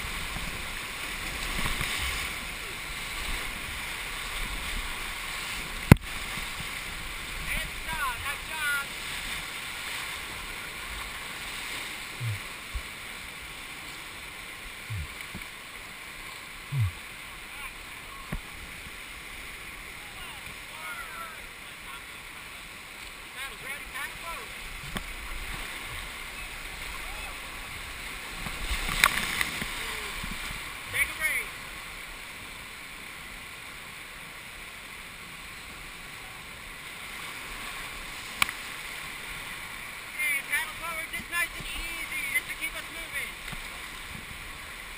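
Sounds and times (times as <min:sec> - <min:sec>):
river water rushing: 0:00.0 - 0:44.9
short dull thumps: 0:12.2 - 0:12.9, 0:14.9 - 0:15.5, 0:16.7 - 0:17.0.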